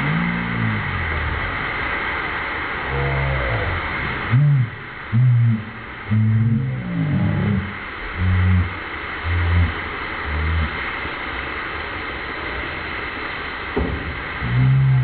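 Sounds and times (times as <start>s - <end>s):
low moaning tones: 0.0s - 2.2s, 2.8s - 11.0s, 14.4s - 15.0s.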